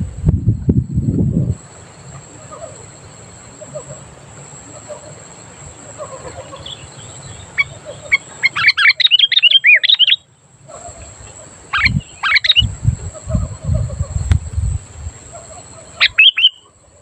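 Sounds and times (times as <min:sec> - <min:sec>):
bird chirping and singing: 0:06.0 - 0:10.2, 0:10.8 - 0:14.3, 0:16.0 - 0:16.6.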